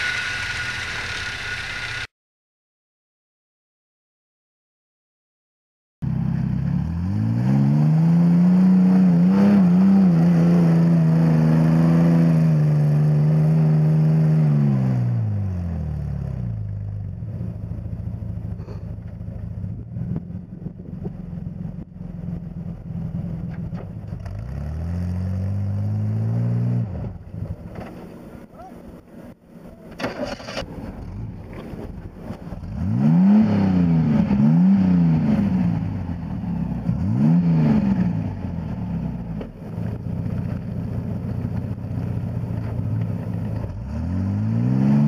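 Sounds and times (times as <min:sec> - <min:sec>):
truck engine revving: 0:00.0 - 0:02.1, 0:06.2 - 0:15.5, 0:24.0 - 0:27.7, 0:30.2 - 0:45.0.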